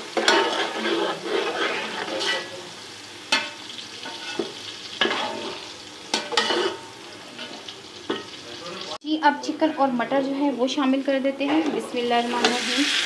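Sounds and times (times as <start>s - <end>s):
spoon stirring and scraping: 0.0s - 2.6s, 3.3s - 8.4s
paste sizzling in hot ghee: 0.0s - 9.0s, 11.8s - 13.0s.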